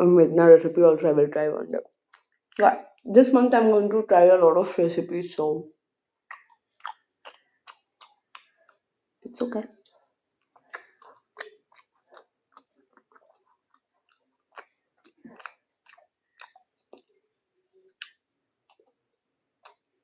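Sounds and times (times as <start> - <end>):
person chewing food: 1.8 - 3.1, 6.2 - 20.0.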